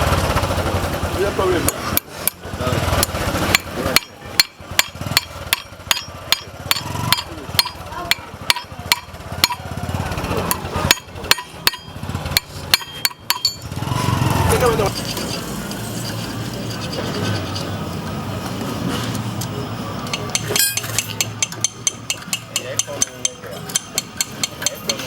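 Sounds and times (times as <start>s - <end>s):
hammer striking metal chain: 3.0s - 9.7s, 10.4s - 13.8s, 20.1s - 25.0s.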